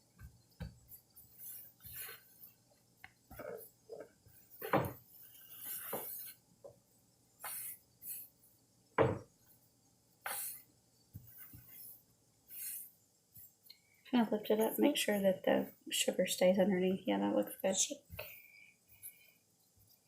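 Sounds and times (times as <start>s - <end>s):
kitchen knocks and clinks: 9.0s - 9.3s.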